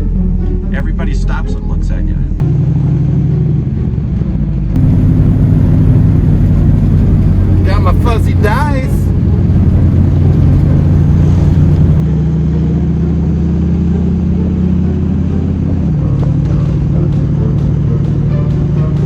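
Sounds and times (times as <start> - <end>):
car engine running: 4.8 - 12.0.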